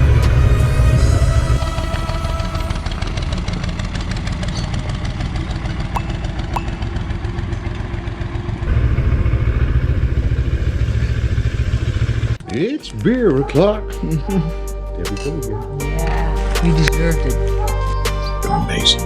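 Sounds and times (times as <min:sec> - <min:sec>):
motorcycle engine running: 0:01.6 - 0:12.4.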